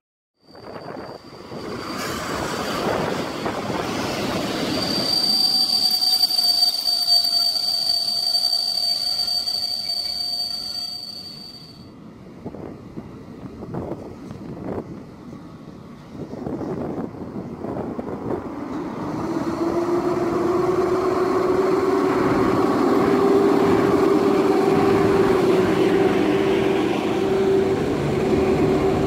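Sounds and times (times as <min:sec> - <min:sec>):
high-pitched wheel squeal: 0:00.4 - 0:11.9, 0:19.5 - 0:29.0
train wheels and carriages rumbling: 0:00.4 - 0:29.0.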